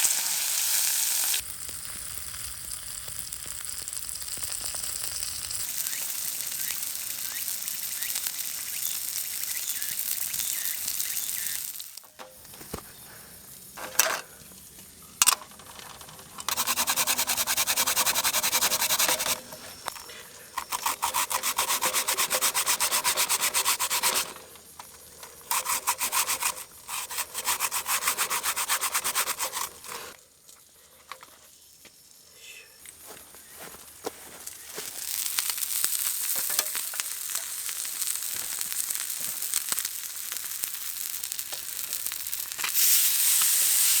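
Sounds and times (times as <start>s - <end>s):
hand saw cutting branch: 16.2s - 30.2s.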